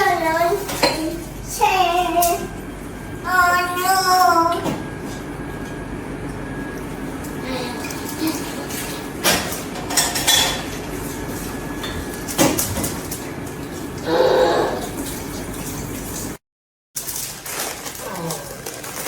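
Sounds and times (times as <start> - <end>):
steady background hum: 0.0 - 16.4
kitchen utensils and dishes clattering: 0.5 - 1.2, 7.8 - 11.2.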